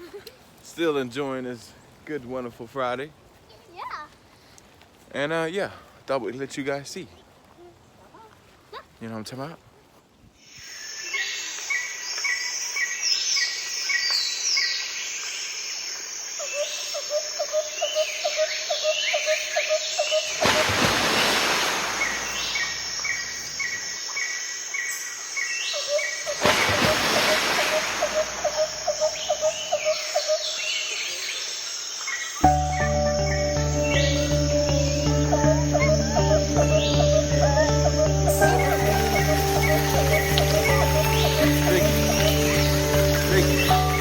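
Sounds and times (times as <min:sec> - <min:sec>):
birds chirping: 0:16.6 - 0:24.4, 0:25.4 - 0:44.0.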